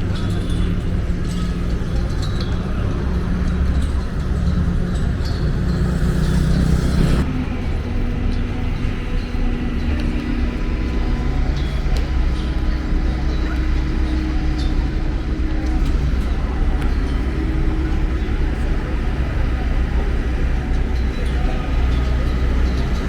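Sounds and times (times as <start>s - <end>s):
vehicle engines passing: 0.0s - 23.0s.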